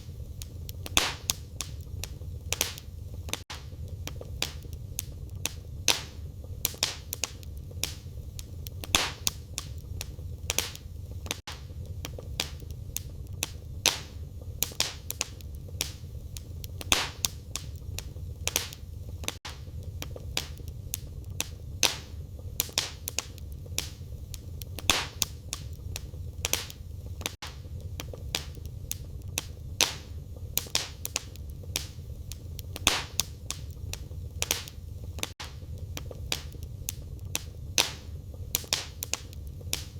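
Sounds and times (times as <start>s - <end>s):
firewood crackling and popping: 0.0s - 39.9s
low rumble of flames: 0.0s - 39.9s
wood snapping: 0.8s - 16.0s, 26.4s - 38.0s.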